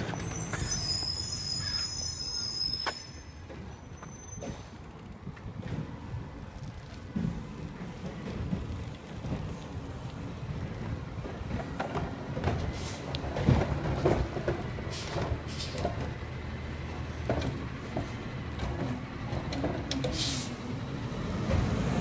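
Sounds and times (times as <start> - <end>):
air hissing bursts: 14.9 - 15.8, 20.1 - 20.6.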